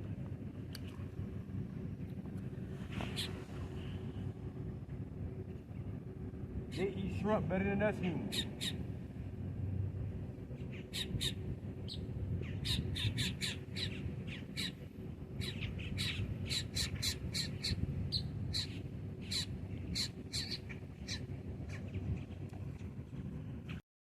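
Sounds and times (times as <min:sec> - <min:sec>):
low steady rumble: 0:00.0 - 0:23.8
birds making harsh high calls: 0:03.0 - 0:03.4, 0:08.3 - 0:08.8, 0:10.7 - 0:14.8, 0:15.4 - 0:21.9.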